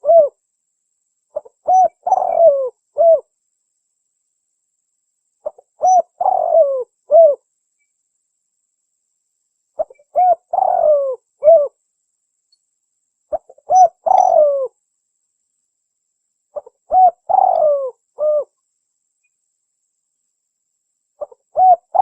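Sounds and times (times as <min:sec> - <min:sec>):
dove cooing: 0:00.0 - 0:00.4, 0:01.4 - 0:03.3, 0:05.4 - 0:07.4, 0:09.8 - 0:11.8, 0:13.3 - 0:14.8, 0:16.6 - 0:18.6, 0:21.2 - 0:22.0.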